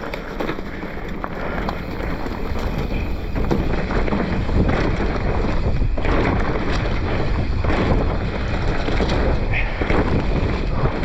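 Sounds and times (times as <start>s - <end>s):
bike knocking and rattling: 0.0s - 11.0s
tyres rolling over dirt: 0.0s - 11.0s
wind rushing over microphone: 0.0s - 11.0s.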